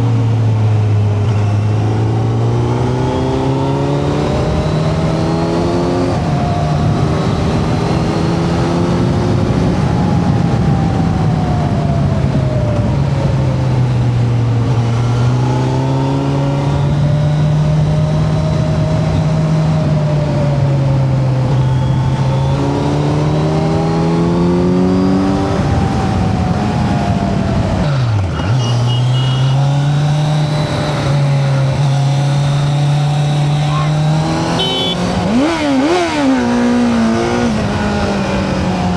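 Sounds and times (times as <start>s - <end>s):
motorcycle engine revving: 0.0s - 38.9s
wind rush on microphone: 3.2s - 28.5s.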